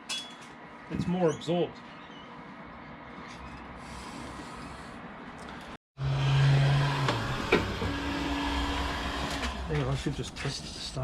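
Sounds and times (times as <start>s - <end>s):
loud droning hum: 6.0s - 10.3s.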